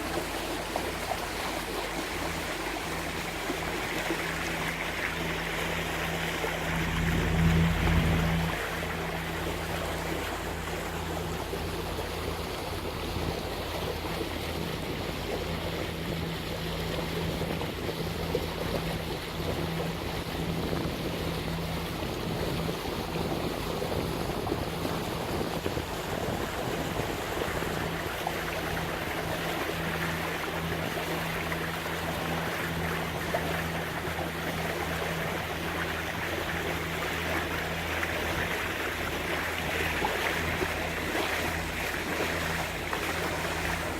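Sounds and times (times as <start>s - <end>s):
boat engines droning: 0.0s - 43.9s
water rushing along hulls: 0.0s - 43.9s
wind on microphone: 14.1s - 29.6s.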